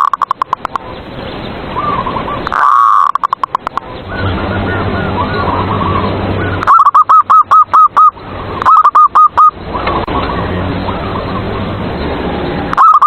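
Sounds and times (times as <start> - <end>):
dove cooing: 1.8 - 11.8, 12.6 - 13.0.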